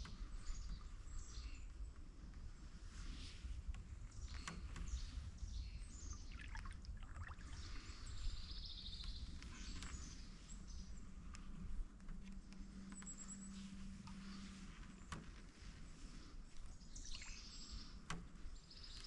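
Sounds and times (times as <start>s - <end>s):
faint low rumble: 0.0s - 19.0s
canoe paddle in water: 6.0s - 8.6s.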